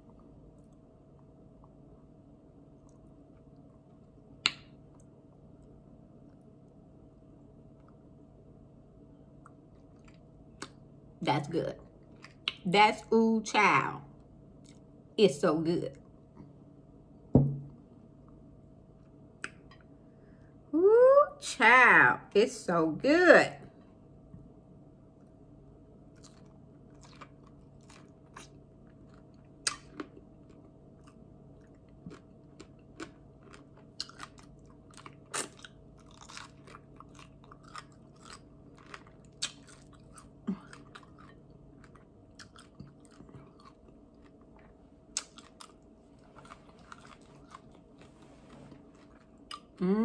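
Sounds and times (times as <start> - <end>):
faint steady hum: 0.0 - 50.0
person chewing chicken wing: 26.1 - 48.0.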